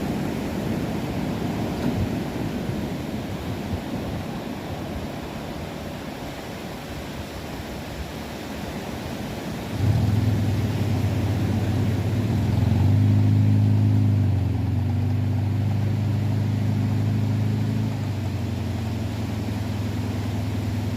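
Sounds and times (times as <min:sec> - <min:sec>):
engine starting and running: 0:09.8 - 0:20.9.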